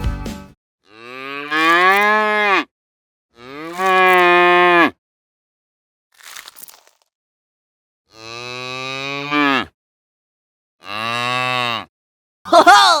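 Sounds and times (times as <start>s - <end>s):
cattle mooing: 0.9s - 2.7s, 3.4s - 5.0s, 8.1s - 9.7s, 10.8s - 11.9s.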